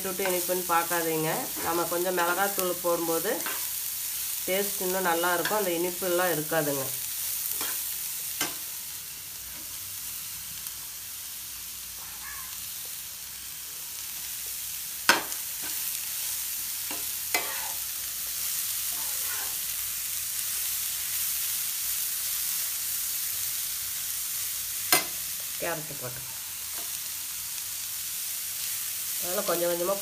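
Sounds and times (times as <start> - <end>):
vegetables sizzling in oil: 0.0 - 30.0
spatula stirring in pan: 15.1 - 17.9, 18.8 - 19.7.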